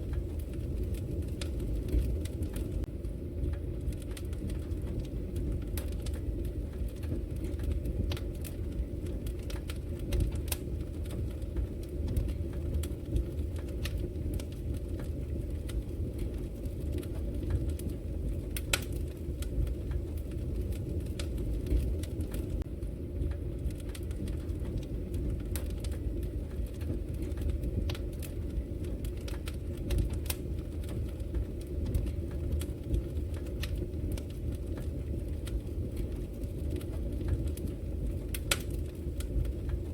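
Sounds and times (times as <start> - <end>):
wood fire crackling: 0.0 - 39.9
sharp pops of fire: 23.6 - 39.9.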